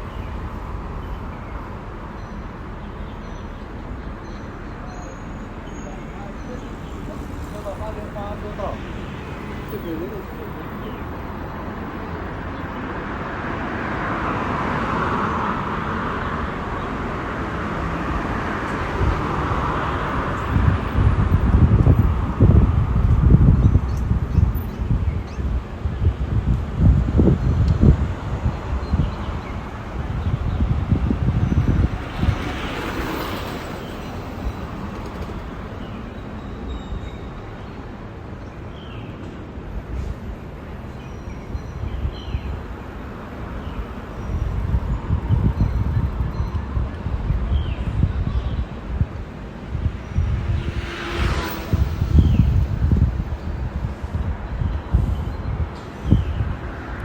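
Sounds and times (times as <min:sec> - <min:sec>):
street noise: 0:00.0 - 0:57.0
wind buffeting on microphone: 0:05.5 - 0:57.0
vehicle passing by: 0:49.6 - 0:54.3.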